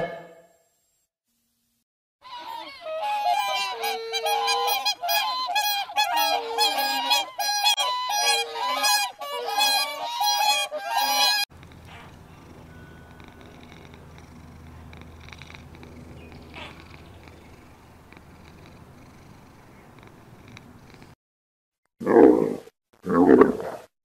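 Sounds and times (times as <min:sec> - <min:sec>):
birds calling: 0:02.3 - 0:21.2.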